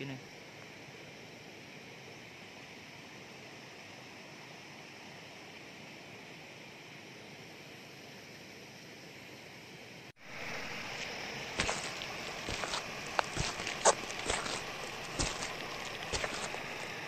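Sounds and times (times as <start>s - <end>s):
floodwater running: 10.2s - 17.0s.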